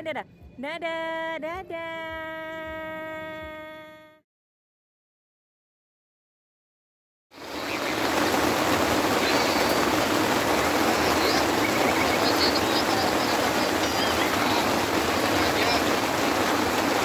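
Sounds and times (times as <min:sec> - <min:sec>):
steady rushing noise: 0:07.4 - 0:17.0
faint high chirps: 0:07.5 - 0:16.0.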